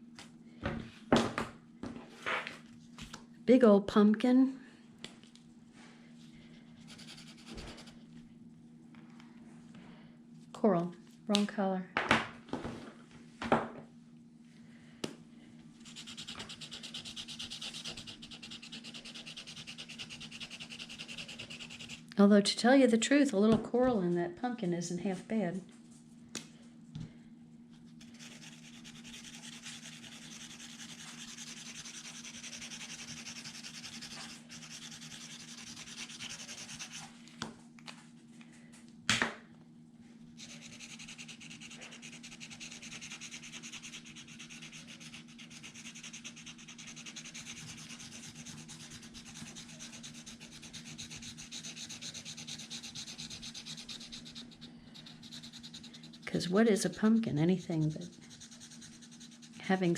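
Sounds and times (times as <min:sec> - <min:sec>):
scratchy rubbing on paper: 0:06.9 - 0:08.0, 0:15.8 - 0:22.0, 0:28.0 - 0:37.1, 0:40.4 - 0:59.8.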